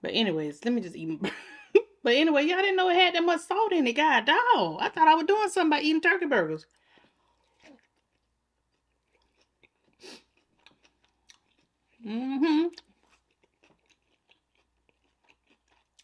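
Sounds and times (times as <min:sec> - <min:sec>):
chewing with mouth smacks: 0:06.7 - 0:12.0, 0:12.7 - 0:16.0
person humming mm: 0:12.0 - 0:12.8.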